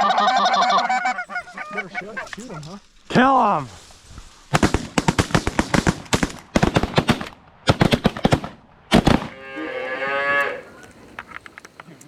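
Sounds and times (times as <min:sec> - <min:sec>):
shotguns firing: 0:04.5 - 0:09.3.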